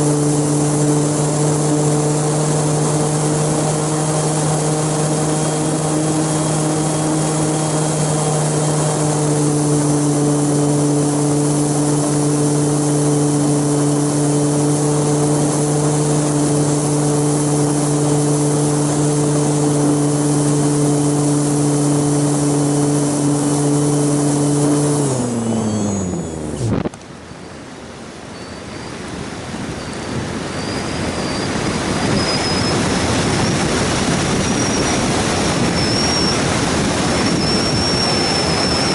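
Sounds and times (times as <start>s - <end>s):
propeller aircraft motor droning: 0.0s - 38.9s
wind rushing: 31.5s - 38.9s.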